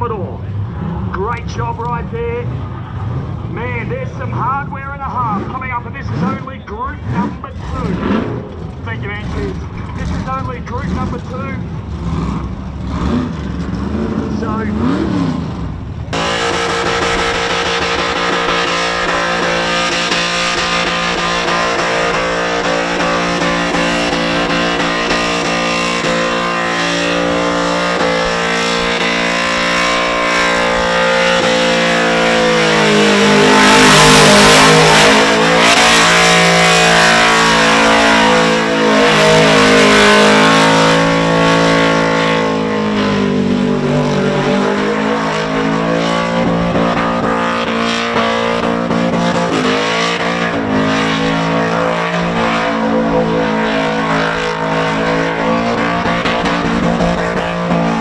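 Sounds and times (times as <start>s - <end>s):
car engine revving in burnout: 0.0s - 58.0s.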